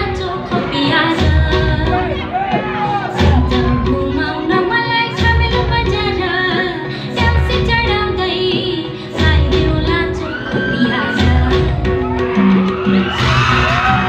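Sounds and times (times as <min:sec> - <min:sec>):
woman singing: 0:00.0 - 0:02.4, 0:03.1 - 0:13.0.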